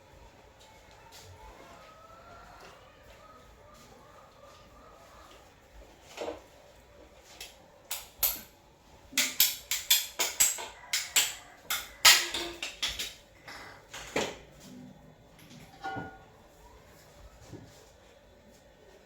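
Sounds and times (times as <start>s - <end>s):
hard objects clattering: 9.2s - 14.5s.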